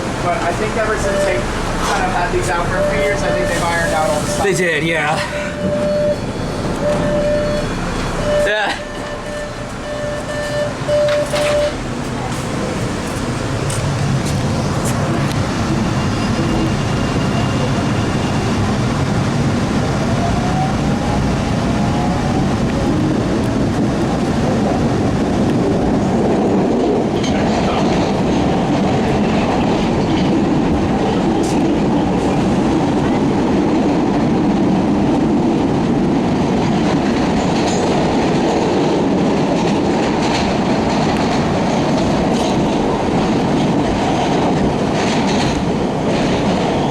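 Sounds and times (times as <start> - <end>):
train wheels clickety-clack: 8.9 - 18.1, 22.5 - 46.9.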